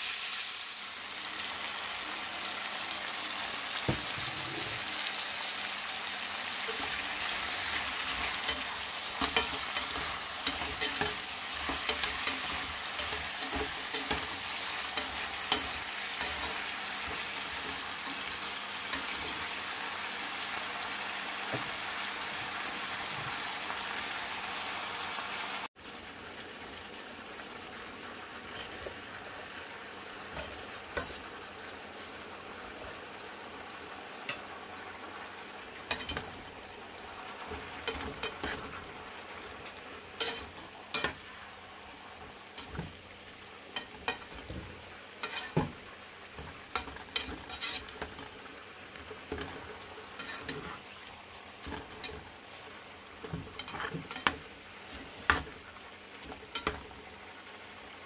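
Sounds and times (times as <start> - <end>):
vegetables sizzling in a pan: 0.0 - 58.0
spatula clacking against pan: 7.7 - 19.4, 43.8 - 45.8, 56.3 - 56.8.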